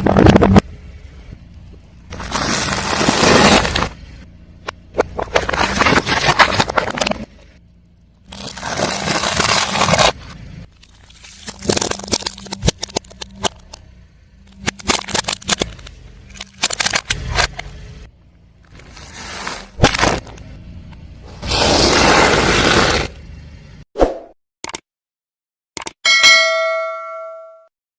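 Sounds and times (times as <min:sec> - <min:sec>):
car tyre crushing objects: 0:01.4 - 0:23.4
sharp cracks and snaps: 0:14.5 - 0:17.7.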